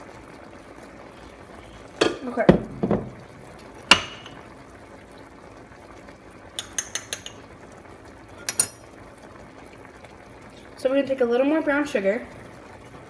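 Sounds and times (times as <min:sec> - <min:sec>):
utensil clinking against cookware: 0:03.9 - 0:04.4, 0:06.6 - 0:07.4, 0:08.4 - 0:08.9.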